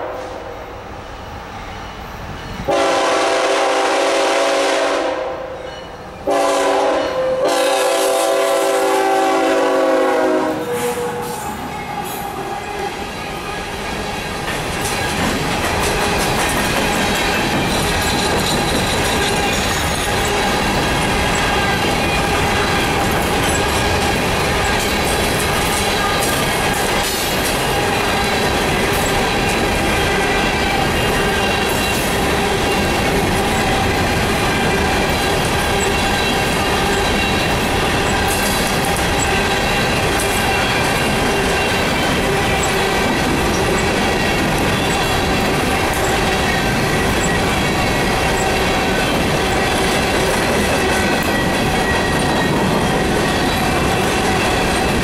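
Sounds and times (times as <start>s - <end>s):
locomotive air horn: 2.7s - 5.6s, 6.3s - 13.0s
train wheels clattering: 5.8s - 55.0s.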